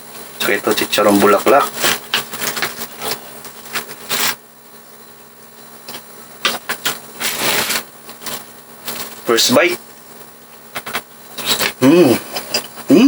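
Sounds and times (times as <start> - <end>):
crispy food crackling: 1.2 - 4.4, 6.5 - 9.2
utensils clicking on plate: 5.9 - 8.4.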